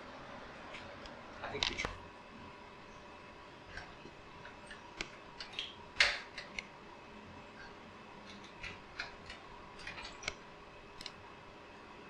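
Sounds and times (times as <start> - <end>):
faint steady hum: 0.0 - 12.0
light clicks and taps: 0.8 - 2.0.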